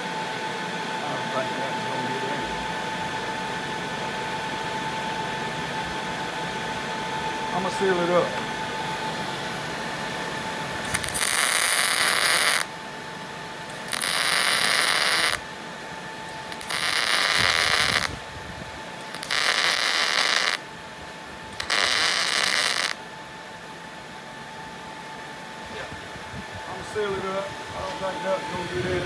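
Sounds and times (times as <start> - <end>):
welding arc crackling: 10.7 - 12.8, 13.6 - 15.5, 16.2 - 18.3, 19.0 - 20.7, 21.5 - 23.1.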